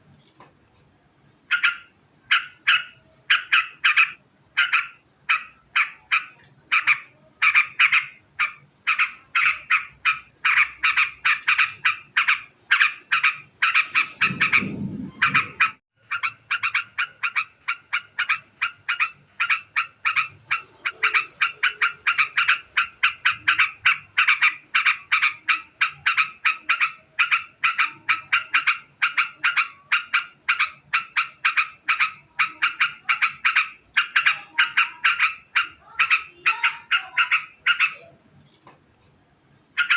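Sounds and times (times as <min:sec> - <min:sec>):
bird chattering fast sharp notes: 0:01.5 - 0:38.0.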